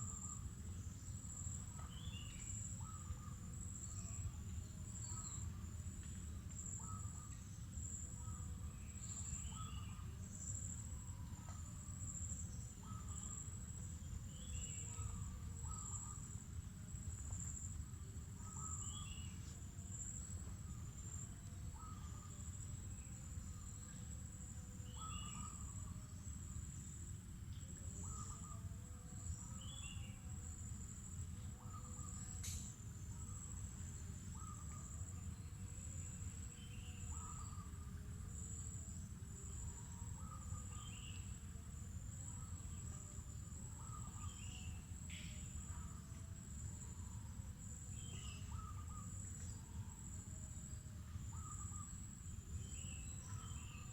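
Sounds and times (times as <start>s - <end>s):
insects trilling: 0.0s - 53.9s
single click: 32.4s - 32.8s.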